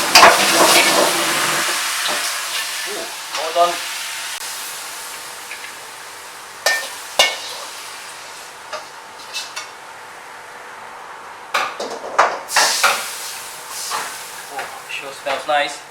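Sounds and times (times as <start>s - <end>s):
food sizzling in a pan: 0.0s - 10.3s, 12.5s - 15.8s
metal utensil scraping a pan: 8.8s - 9.7s.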